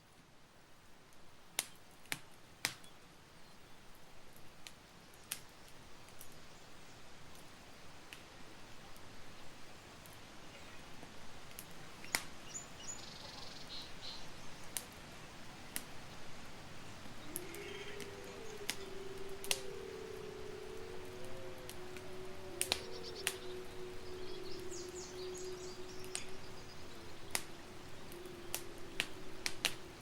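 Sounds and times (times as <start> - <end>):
campfire crackling: 0.2 - 30.0
faint high chirps: 12.2 - 14.7, 16.8 - 30.0
low wavering tone: 17.2 - 30.0.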